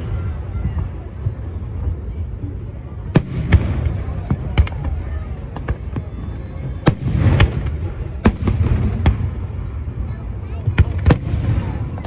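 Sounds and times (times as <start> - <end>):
fireworks crackling: 2.9 - 12.0
fireworks bangs: 3.0 - 12.0.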